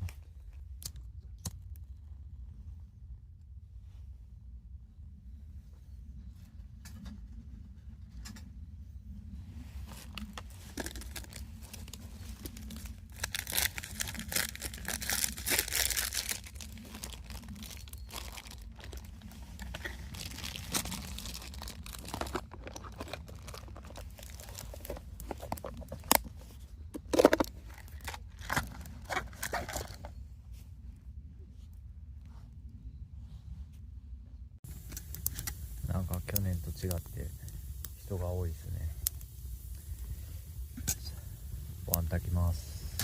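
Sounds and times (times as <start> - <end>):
plastic packaging crinkling: 10.0 - 30.1.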